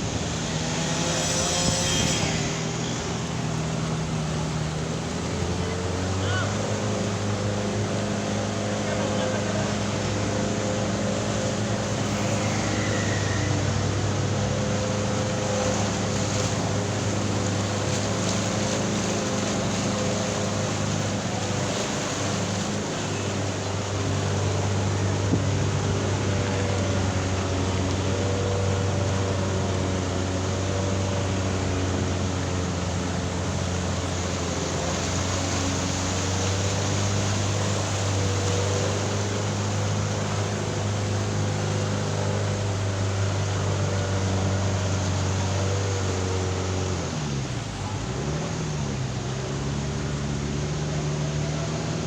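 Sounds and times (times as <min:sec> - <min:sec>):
even rushing noise: 0:00.0 - 0:52.0
motor humming: 0:00.0 - 0:52.0.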